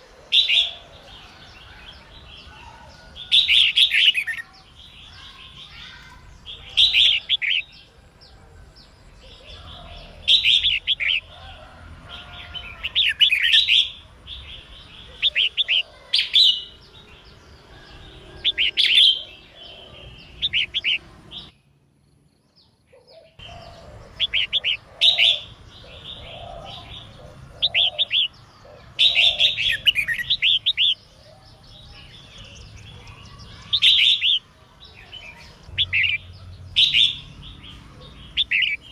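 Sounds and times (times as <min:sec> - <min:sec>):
bird chirping rapidly: 0:03.3 - 0:07.9, 0:12.6 - 0:14.0, 0:23.3 - 0:38.9.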